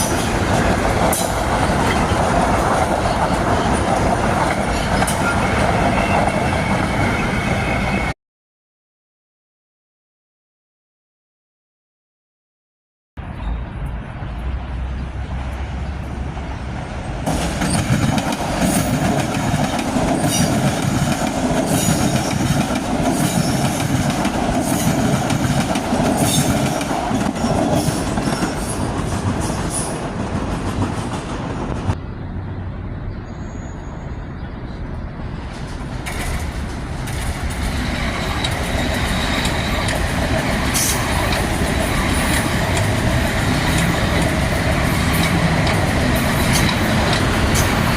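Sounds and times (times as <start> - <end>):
commuter train passing: 0.0 - 8.2, 13.2 - 47.9
wheels clicking over rail joints: 35.5 - 47.9.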